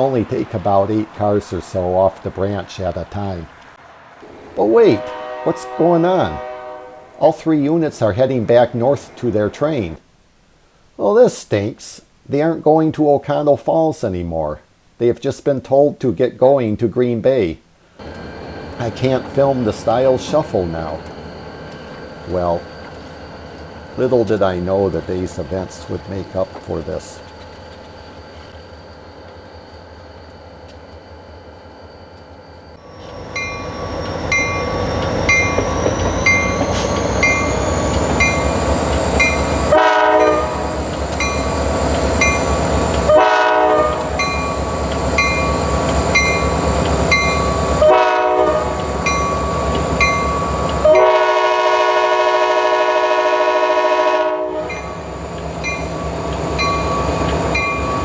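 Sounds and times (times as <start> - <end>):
diesel locomotives running: 0.0 - 10.1, 17.8 - 58.0
train horn blasts: 4.3 - 7.4, 39.2 - 40.9, 43.1 - 44.8, 47.7 - 49.0, 50.8 - 55.0.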